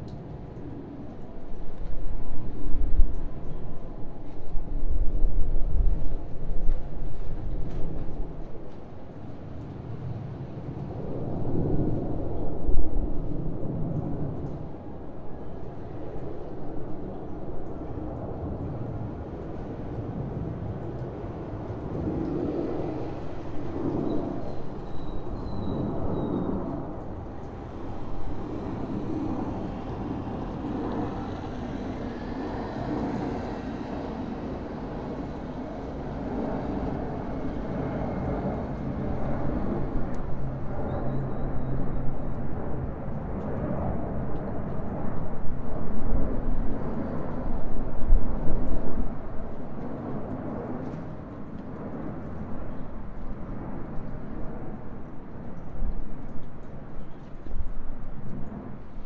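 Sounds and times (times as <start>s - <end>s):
distant aircraft rumble: 5.6s - 59.0s
city hum: 12.4s - 45.6s
aircraft engine drone: 18.0s - 45.7s.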